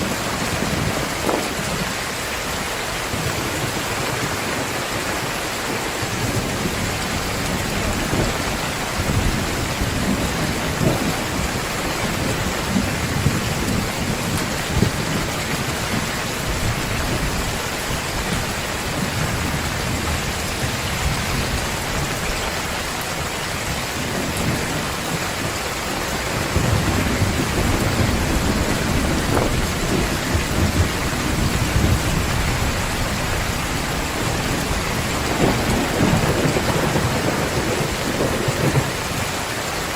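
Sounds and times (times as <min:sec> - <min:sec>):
heavy rain pouring: 0:00.0 - 0:39.9
thunder rumbling: 0:00.0 - 0:39.9.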